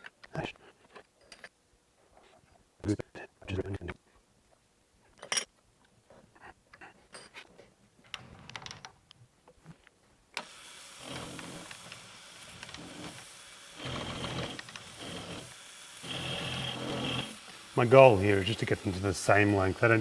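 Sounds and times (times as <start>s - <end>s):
cutter milling metal: 10.4s - 20.0s
milling machine spindle running: 10.4s - 20.0s.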